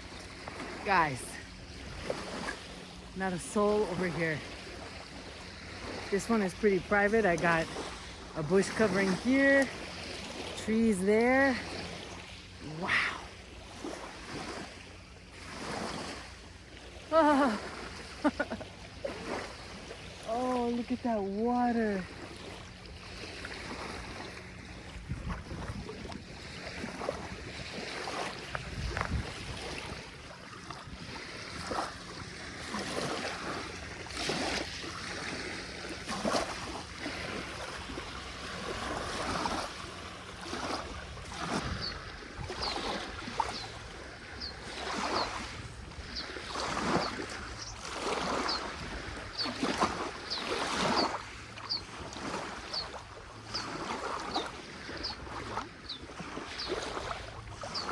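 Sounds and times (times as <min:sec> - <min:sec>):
waves lapping on shore: 0:00.0 - 0:57.9.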